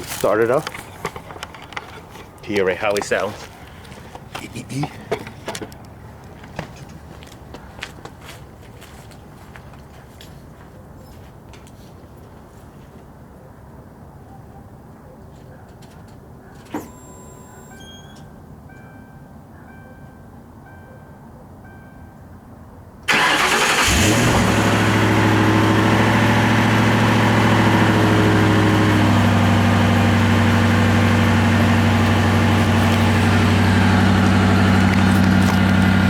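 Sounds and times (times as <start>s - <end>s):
car engine starting and idling: 23.1s - 36.0s.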